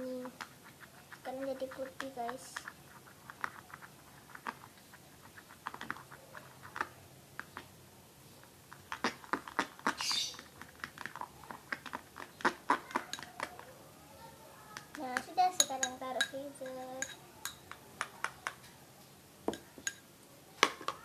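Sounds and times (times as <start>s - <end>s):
spoon scraping a bowl: 8.7s - 13.6s, 15.2s - 17.8s
spoon tapping a bowl: 12.9s - 13.5s, 14.8s - 18.6s, 19.5s - 21.0s.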